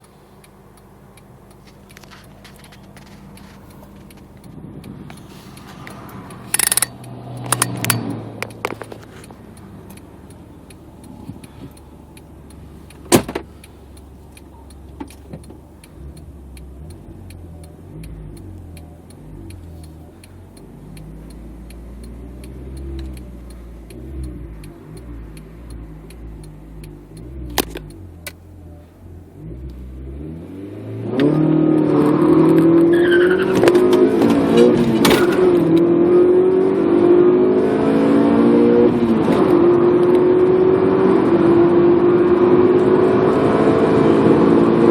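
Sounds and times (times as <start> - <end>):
light regular ticking: 0.0 - 30.6
car engine idling and revving: 0.0 - 44.9.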